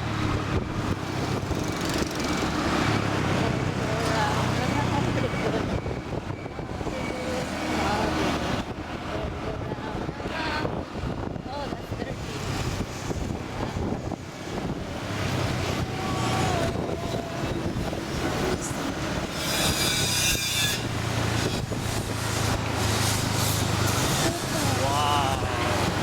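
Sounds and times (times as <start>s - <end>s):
scooter engine hum: 0.0s - 11.0s, 11.6s - 26.0s
road and wind noise: 0.0s - 26.0s
high-pitched screech: 15.9s - 26.0s.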